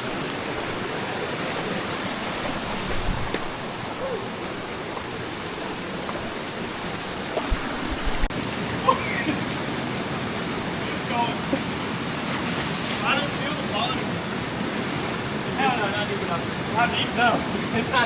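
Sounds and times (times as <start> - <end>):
waterfall roaring: 0.0 - 18.0
low bumps: 1.4 - 8.3.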